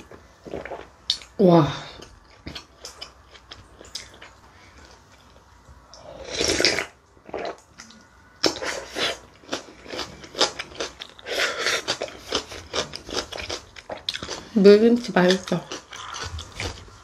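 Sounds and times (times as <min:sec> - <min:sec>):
crunchy chewing: 0:06.4 - 0:14.5, 0:15.3 - 0:17.0.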